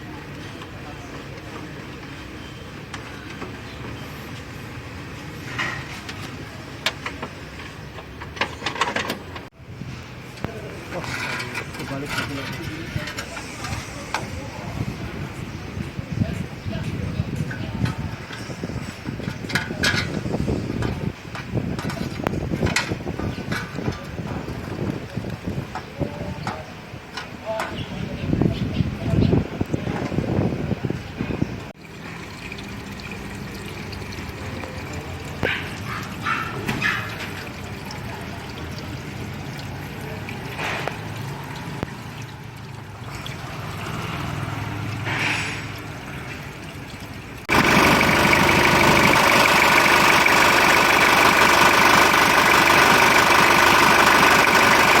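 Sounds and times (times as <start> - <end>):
liquid trickling and pouring: 31.8 - 55.0
diesel engine idling: 47.4 - 55.0.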